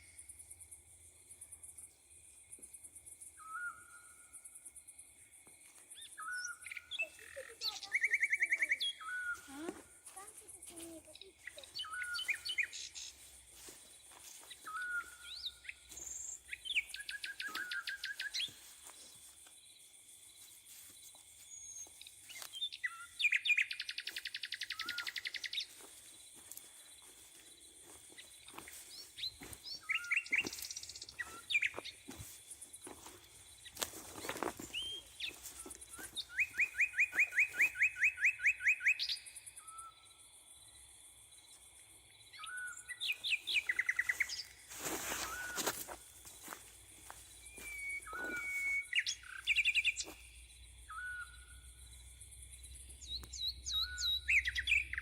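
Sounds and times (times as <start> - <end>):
songbirds singing trilled songs: 0.0 - 55.0
bird calls and chirps: 3.2 - 4.6, 5.8 - 19.5, 21.1 - 40.2, 42.3 - 52.0, 52.6 - 55.0.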